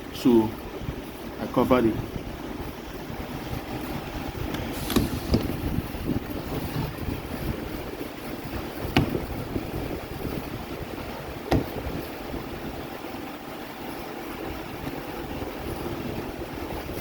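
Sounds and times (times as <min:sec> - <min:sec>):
steady background noise: 0:00.0 - 0:17.0
sharp knocks of tools: 0:08.8 - 0:09.3, 0:11.5 - 0:11.9.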